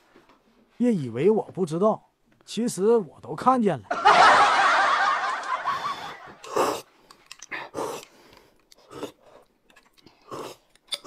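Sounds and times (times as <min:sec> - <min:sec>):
person chewing: 0:06.3 - 0:11.0.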